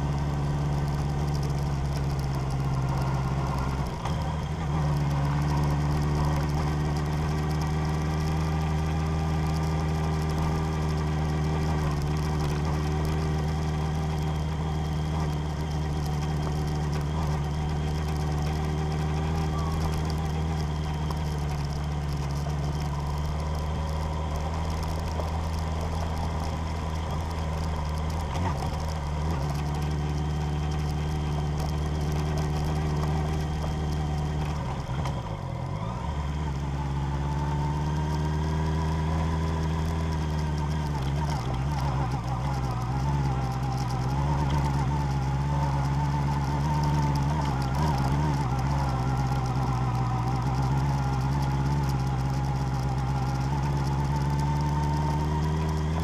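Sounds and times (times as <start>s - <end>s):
vehicle engine humming steadily: 0.0s - 56.0s.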